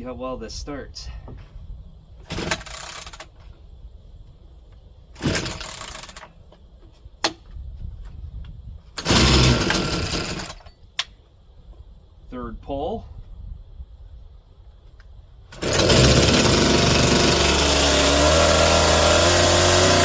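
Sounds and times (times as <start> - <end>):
chainsaw starter cord pulls: 2.3 - 3.3, 5.2 - 6.3, 9.0 - 10.6, 15.5 - 20.0.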